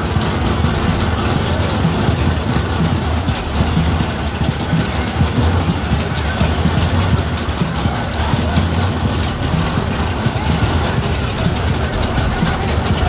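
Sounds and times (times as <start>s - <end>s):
choppy car engine idling: 0.0s - 13.0s
crowd voices: 0.0s - 13.0s.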